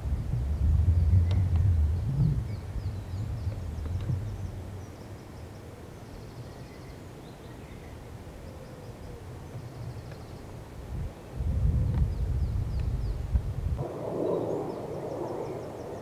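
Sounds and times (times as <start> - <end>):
low outdoor rumble: 0.0 - 5.4, 11.0 - 16.0
birds chirping and trilling: 13.9 - 16.0.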